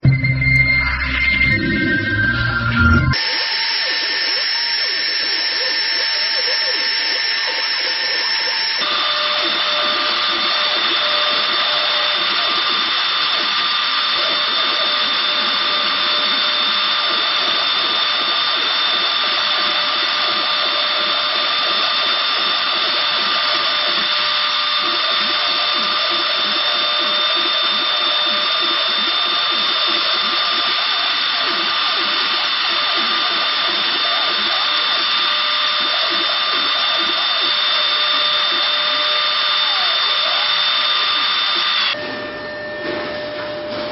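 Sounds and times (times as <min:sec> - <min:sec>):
router spindle whining: 0:00.8 - 0:43.9.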